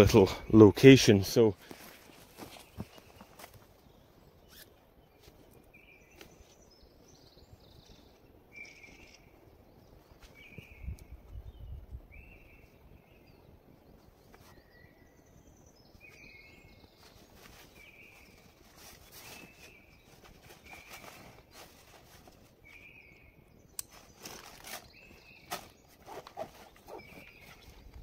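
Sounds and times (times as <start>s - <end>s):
faint bird calls: 4.4s - 6.6s, 14.2s - 28.0s.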